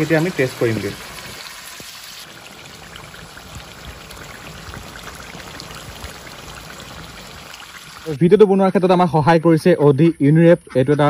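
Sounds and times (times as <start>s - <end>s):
meat sizzling with crackling pops: 0.0s - 8.1s.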